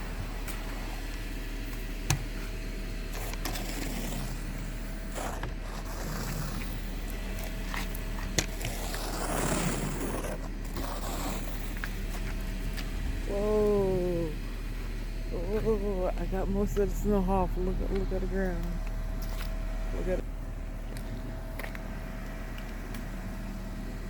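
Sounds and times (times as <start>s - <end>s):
snow scraped off a car: 2.3s - 13.3s.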